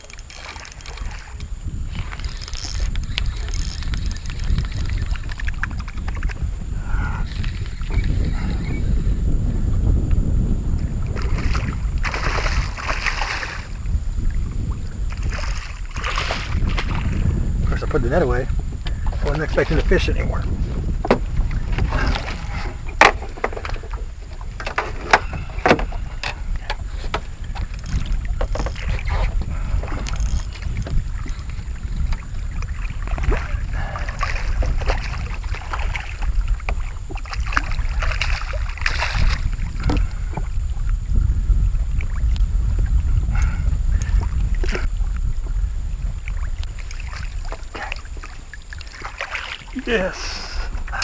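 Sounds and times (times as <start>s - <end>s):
gear knocking against boat: 0.0s - 51.0s
wind on microphone: 0.0s - 51.0s.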